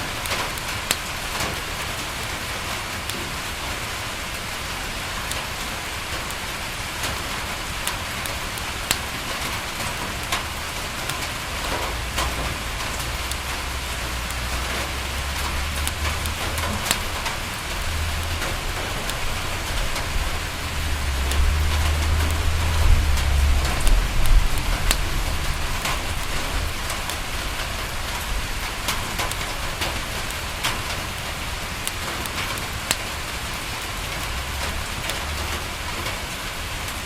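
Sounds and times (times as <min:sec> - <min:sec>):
rain pattering on a window: 0:00.0 - 0:37.0
wood fire crackling: 0:00.0 - 0:37.0
low rumble: 0:14.9 - 0:27.6.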